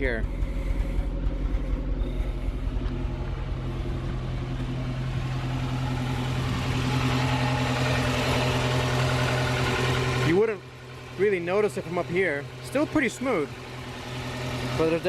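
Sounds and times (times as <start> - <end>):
car engine idling with misfire: 0.0 - 15.0.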